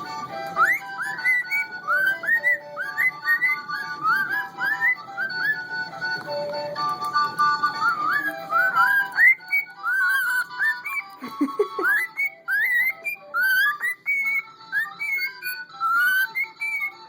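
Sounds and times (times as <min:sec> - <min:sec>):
tin whistle music: 0:00.0 - 0:17.0
cockatiel whistling: 0:00.4 - 0:17.0.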